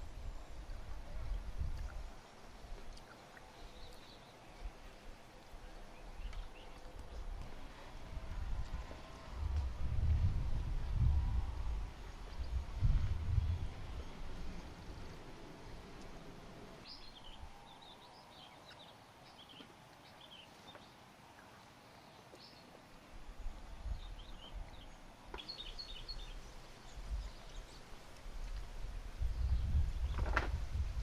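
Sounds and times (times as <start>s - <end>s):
small birds chirping: 0.0s - 7.8s, 16.8s - 30.5s
faint outdoor background: 0.0s - 31.0s
low rumble: 7.1s - 17.6s.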